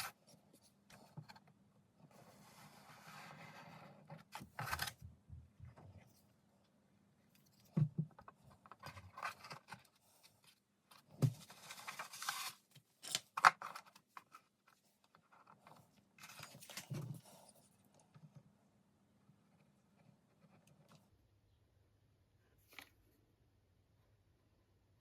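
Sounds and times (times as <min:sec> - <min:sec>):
scraping and rustling: 0:08.4 - 0:17.7.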